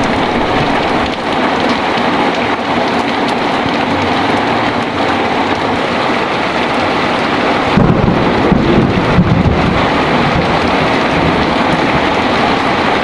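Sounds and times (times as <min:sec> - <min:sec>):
thunder rumble: 0:00.0 - 0:02.6, 0:06.6 - 0:13.0
heavy rain: 0:00.0 - 0:13.0.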